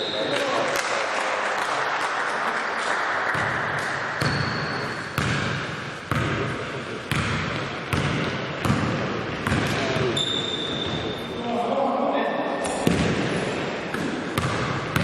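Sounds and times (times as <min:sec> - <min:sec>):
basketball bouncing on indoor court: 0:03.3 - 0:11.3, 0:12.6 - 0:15.0.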